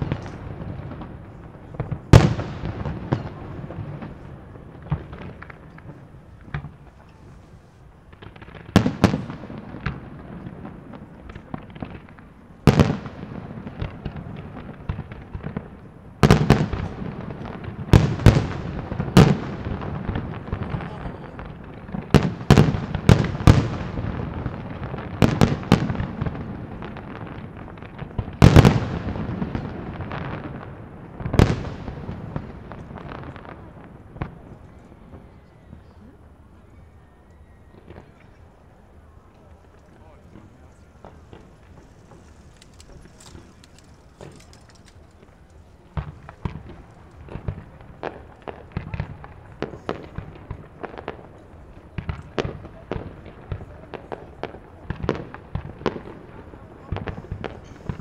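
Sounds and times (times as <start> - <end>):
fireworks crackling: 0.0 - 36.9, 37.7 - 58.0
firework shells bursting: 40.3 - 48.3.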